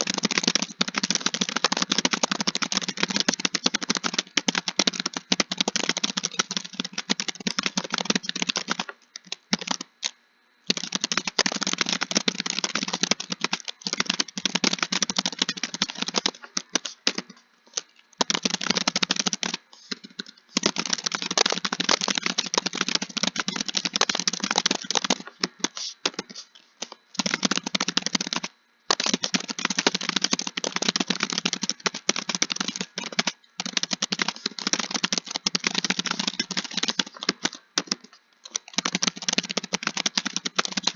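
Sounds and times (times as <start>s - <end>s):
typing on computer keyboard: 0.0s - 40.9s.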